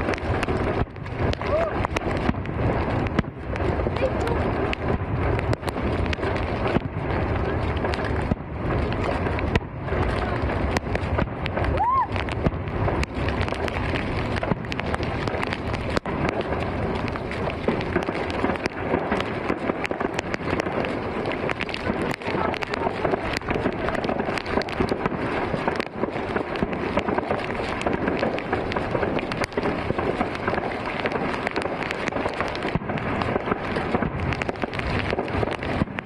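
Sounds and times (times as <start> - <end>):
fireworks popping and crackling: 0.0 - 36.0.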